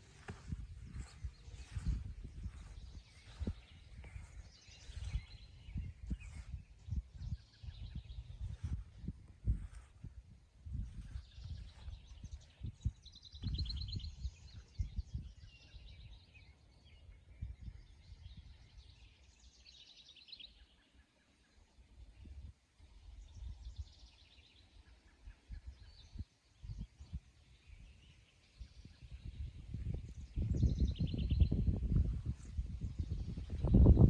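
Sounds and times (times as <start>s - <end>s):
songbirds trilling: 0.0s - 9.9s.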